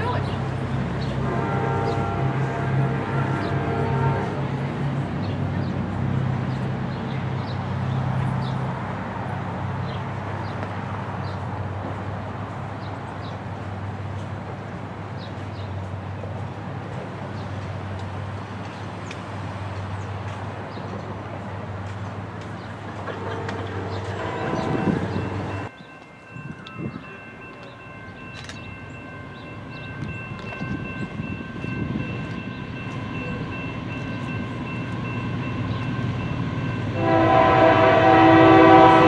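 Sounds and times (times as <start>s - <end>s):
diesel train rumbling: 0.0s - 39.0s
birds chirping: 22.5s - 37.0s.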